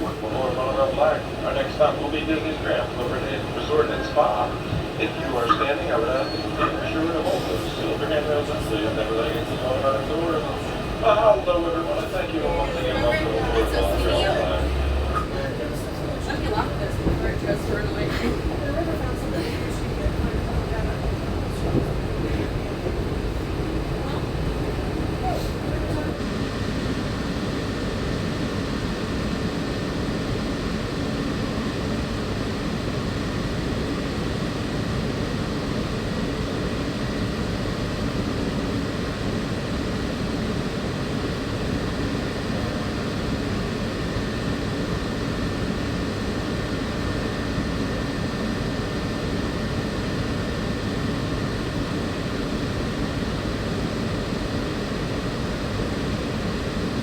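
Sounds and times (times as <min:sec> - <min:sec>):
train rumbling in motion: 0:00.0 - 0:27.0.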